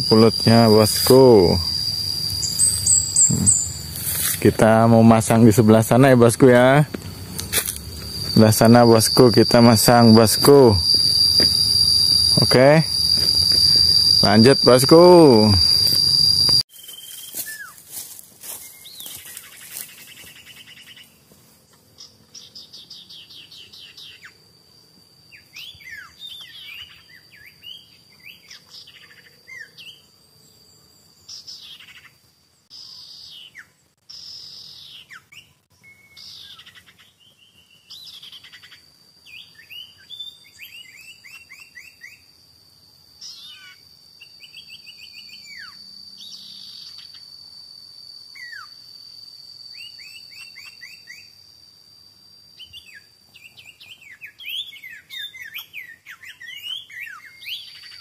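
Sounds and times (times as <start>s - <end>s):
birds chirping and calling: 0.0s - 16.5s
high insect drone: 0.0s - 58.0s.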